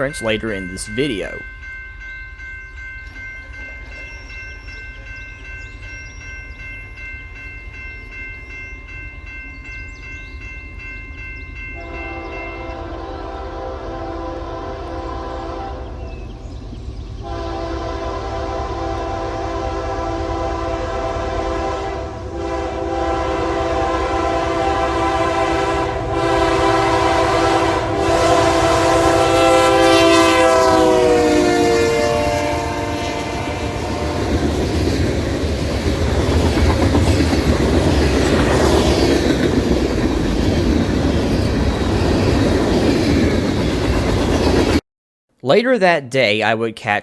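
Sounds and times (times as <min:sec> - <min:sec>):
locomotive air horn blasts: 0:11.8 - 0:16.0, 0:17.2 - 0:34.6.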